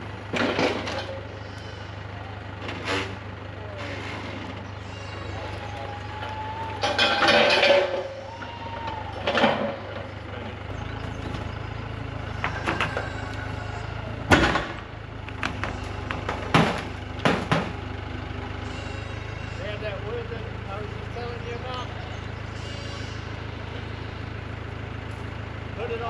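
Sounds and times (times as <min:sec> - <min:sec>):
engine running: 0:00.0 - 0:26.0
sharp knocks and clunks: 0:14.3 - 0:17.8.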